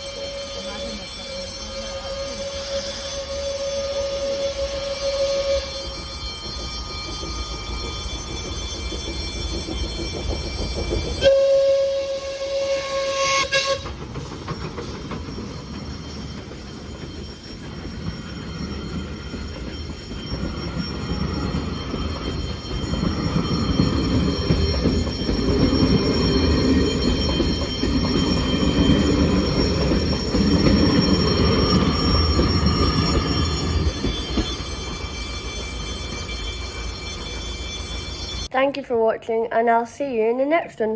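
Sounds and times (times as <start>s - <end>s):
train horn: 0.0s - 6.1s, 11.2s - 14.0s
train rumble: 0.0s - 38.6s.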